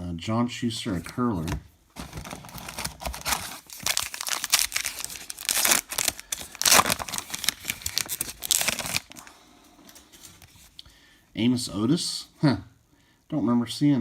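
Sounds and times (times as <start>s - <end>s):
wrapper tearing and crinkling: 2.0s - 9.3s.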